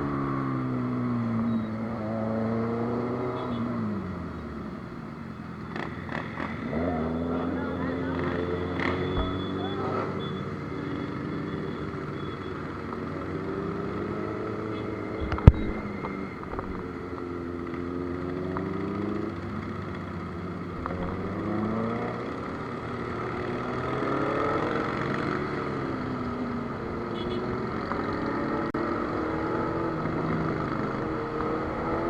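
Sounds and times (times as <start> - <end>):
motorcycle engine revving: 5.7 - 11.5, 13.2 - 17.0, 17.6 - 32.0
sharp knock: 9.1 - 9.5.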